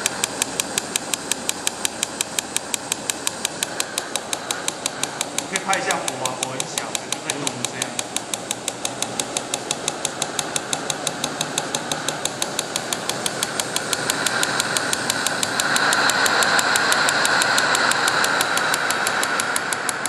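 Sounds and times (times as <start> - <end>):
engine linkage clicking knock: 0.0 - 20.0
whirring hiss: 0.0 - 20.0.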